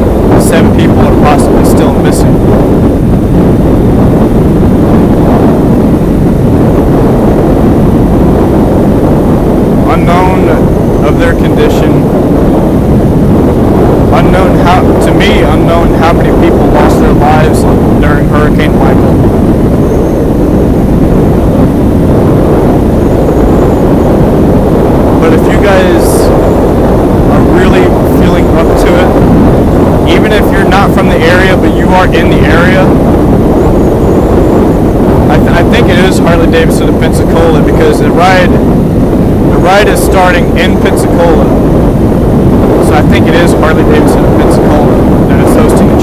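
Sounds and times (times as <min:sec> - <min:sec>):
motorcycle engine drone: 0:00.0 - 0:46.0
wind buffeting microphone: 0:00.0 - 0:46.0.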